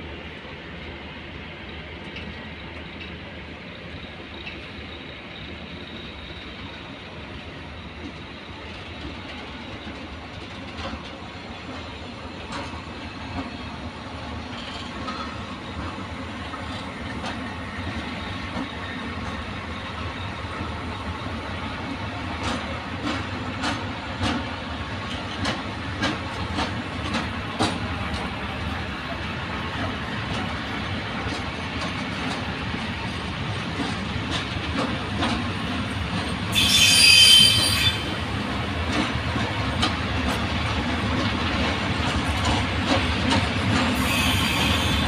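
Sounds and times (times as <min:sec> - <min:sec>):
train running through station: 0:00.0 - 0:45.0
wheels clicking over rail joints: 0:14.4 - 0:15.4, 0:22.2 - 0:28.5, 0:29.7 - 0:36.6, 0:37.9 - 0:44.2.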